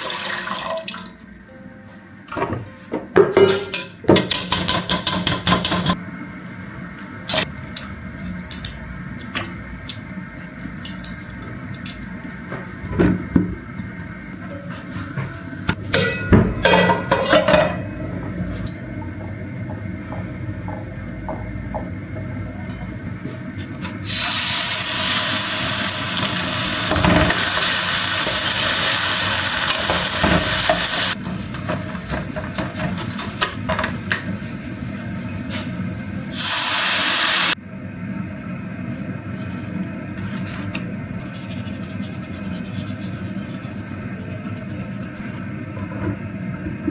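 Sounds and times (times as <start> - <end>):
kitchen knocks and clatters: 2.4 - 6.0, 15.1 - 17.9
low steady hum: 37.6 - 46.9.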